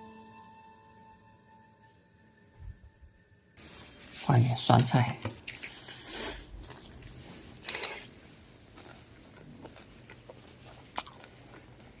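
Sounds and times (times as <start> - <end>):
faint chewing: 5.5 - 8.1, 8.7 - 12.0.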